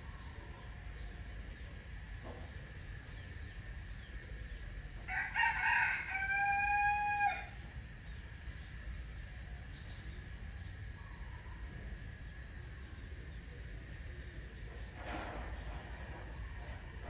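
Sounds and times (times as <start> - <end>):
rooster crowing: 5.1 - 7.6.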